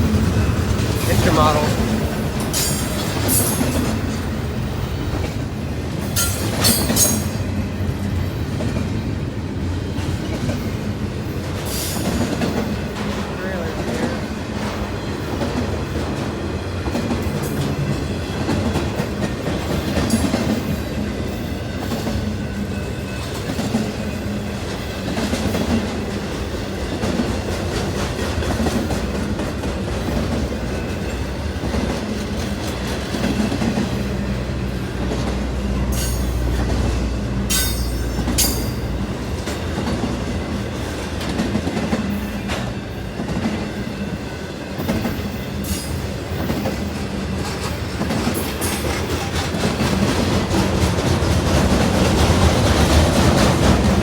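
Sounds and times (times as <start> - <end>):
wheels clacking over rail joints: 0.0 - 7.6, 44.7 - 54.0
train rumbling past: 0.0 - 54.0.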